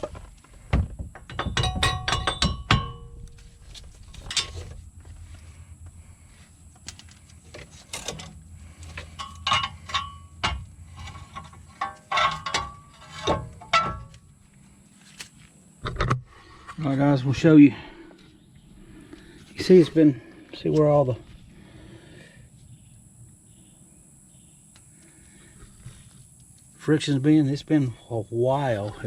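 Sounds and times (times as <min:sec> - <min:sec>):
metal tools clanking: 0:01.2 - 0:04.9, 0:06.9 - 0:14.3.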